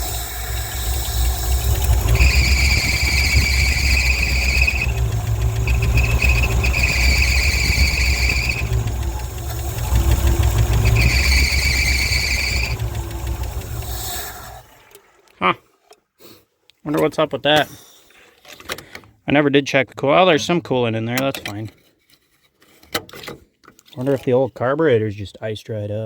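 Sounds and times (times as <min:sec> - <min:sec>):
high-pitched squeal: 0:00.0 - 0:14.6
pickup engine running: 0:00.0 - 0:14.7.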